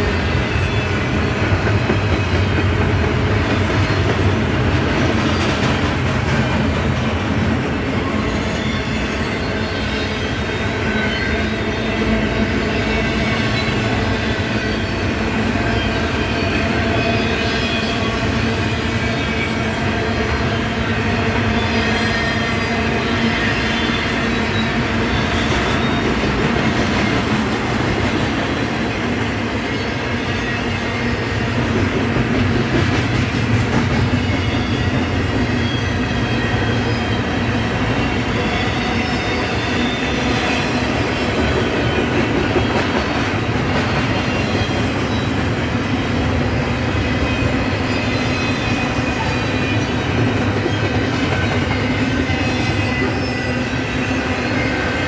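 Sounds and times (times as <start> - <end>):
clickety-clack of train trucks: 0.0 - 55.0
freight train wheels rumbling: 0.0 - 55.0.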